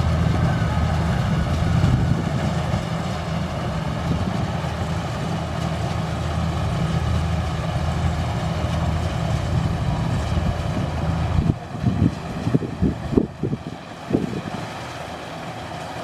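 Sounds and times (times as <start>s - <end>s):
combine harvester engine running: 0.0s - 16.0s.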